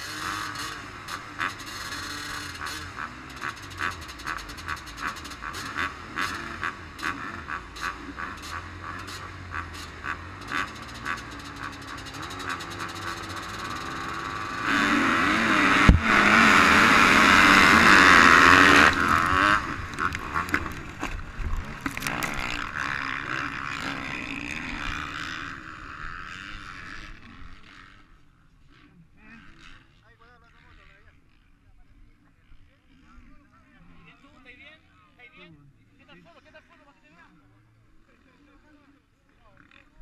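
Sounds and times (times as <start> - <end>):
motocross bike engines racing: 0.0 - 40.0
sharp thump: 15.7 - 16.2.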